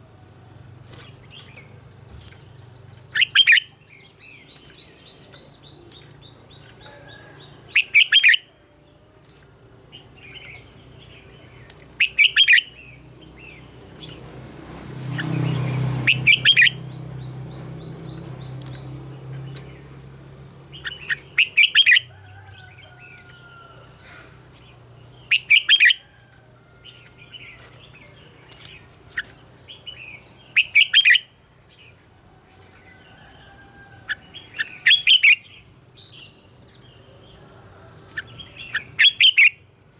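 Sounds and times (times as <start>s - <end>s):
faint bird chirps: 0.8s - 12.8s.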